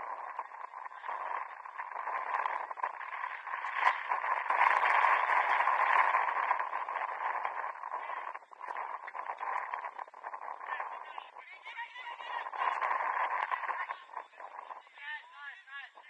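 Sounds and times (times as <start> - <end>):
muffled shouting and voices: 7.9 - 16.0.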